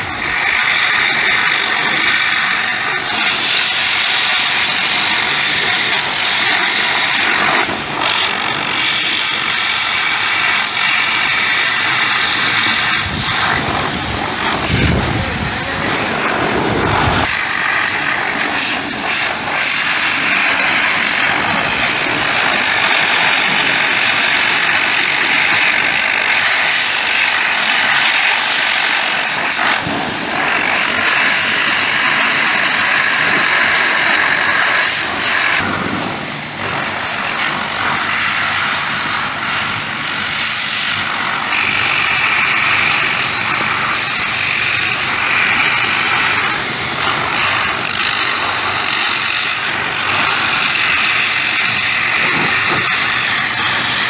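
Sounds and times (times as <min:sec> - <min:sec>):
hissing: 0:00.0 - 0:28.1, 0:40.9 - 0:54.0
machine running loudly: 0:00.0 - 0:54.0.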